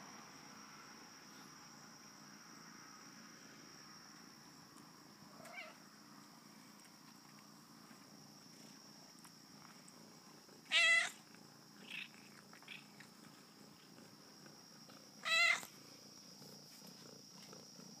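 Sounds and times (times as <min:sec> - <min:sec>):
kitten meowing: 0:10.7 - 0:11.2, 0:15.2 - 0:15.7.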